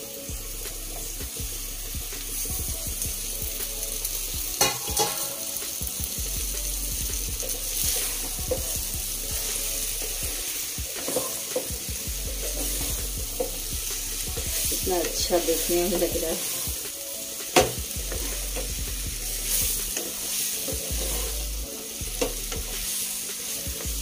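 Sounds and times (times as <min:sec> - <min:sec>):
vegetables sizzling in a pan: 0:00.0 - 0:24.0
spatula scraping and knocking pan: 0:04.5 - 0:05.5, 0:07.0 - 0:24.0.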